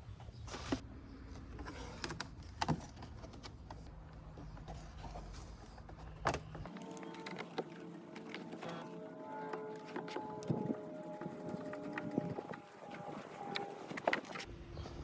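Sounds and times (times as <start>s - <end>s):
tools clicking and knocking: 6.6s - 12.9s.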